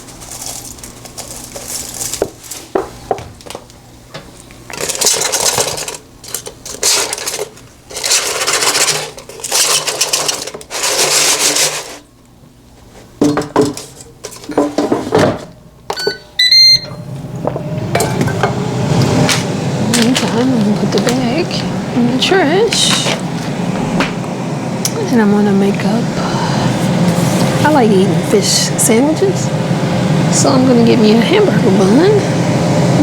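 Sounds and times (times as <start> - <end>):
rustling or shaking: 0.0 - 2.7
short electronic beeps: 16.0 - 17.0.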